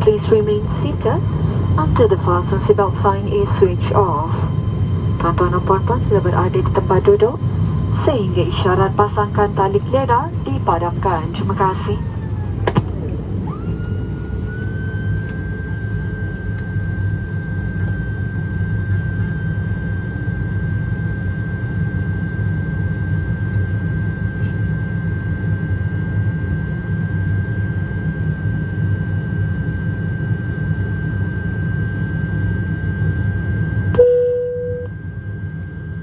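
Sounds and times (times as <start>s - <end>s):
turboprop engines droning in cabin: 0.0s - 36.0s.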